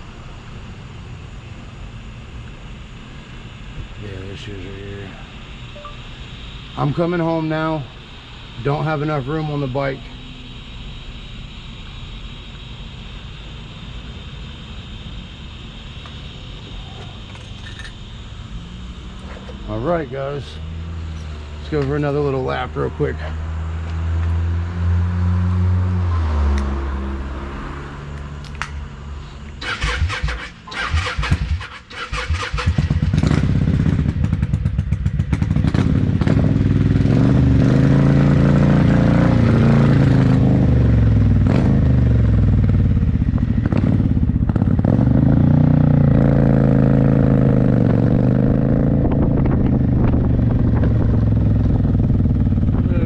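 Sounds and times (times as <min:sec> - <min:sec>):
motorcycle engine: 0:17.0 - 0:53.0.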